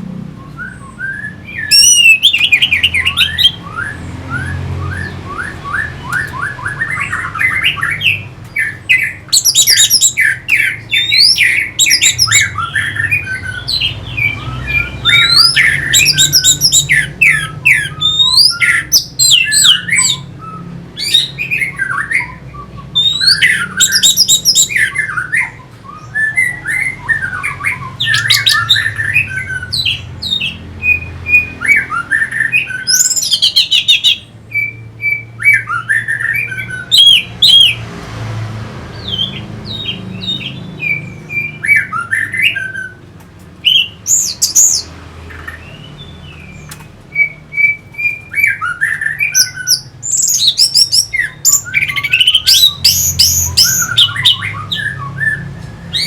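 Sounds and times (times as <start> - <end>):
thrush singing: 0.0 - 37.8.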